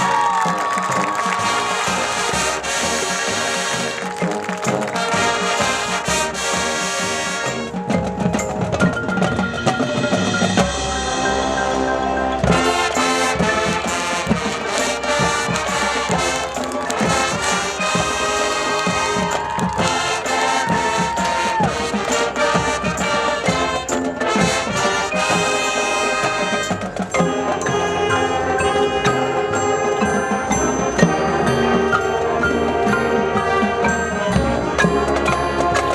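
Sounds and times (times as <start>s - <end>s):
marching band playing: 0.0s - 35.9s.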